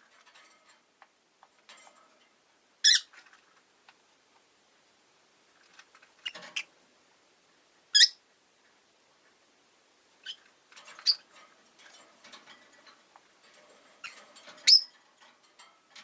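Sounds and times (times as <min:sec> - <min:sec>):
lovebirds shrill chirps: 0:02.8 - 0:03.1, 0:08.0 - 0:08.2, 0:14.6 - 0:14.9.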